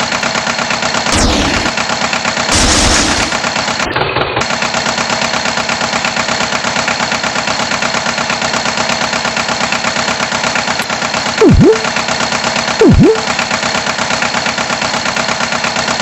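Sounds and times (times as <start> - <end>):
cartoon swooping sound effect: 11.4 - 11.9, 12.8 - 13.3.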